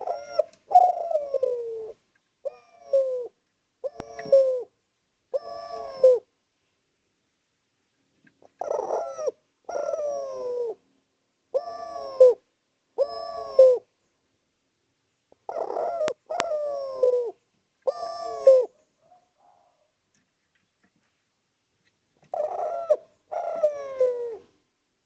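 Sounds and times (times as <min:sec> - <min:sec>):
dove cooing: 0:00.0 - 0:06.3, 0:08.4 - 0:10.8, 0:11.5 - 0:13.9, 0:15.3 - 0:19.9, 0:22.2 - 0:24.6.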